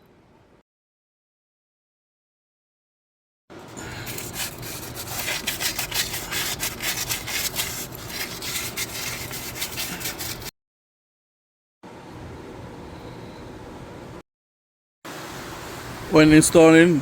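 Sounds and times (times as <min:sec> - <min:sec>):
hand scrubbing metal: 0:03.8 - 0:10.5.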